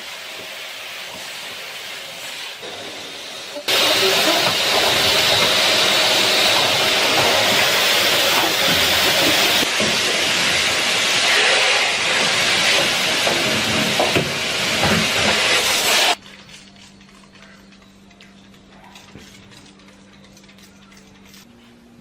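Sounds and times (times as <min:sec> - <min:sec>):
loud hissing rush with knocks: 0:00.0 - 0:16.2.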